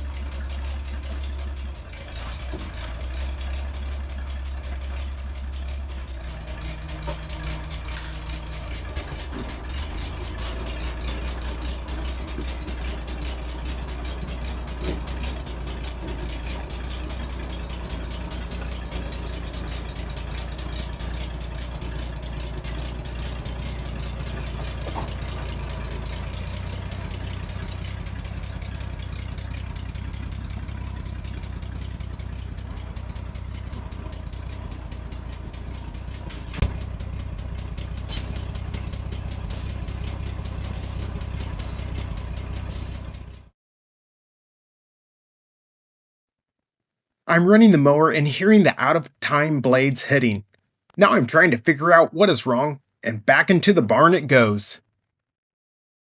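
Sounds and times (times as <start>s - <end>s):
tractor engine running: 0.0s - 43.5s
fast clatter of small knocks: 22.4s - 31.8s.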